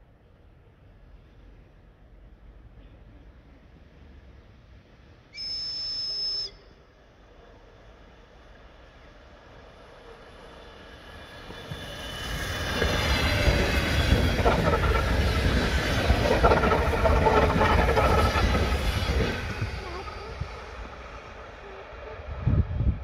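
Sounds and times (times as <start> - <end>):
electric train passing: 6.7 - 23.0
wheels clattering over rails: 11.0 - 22.2.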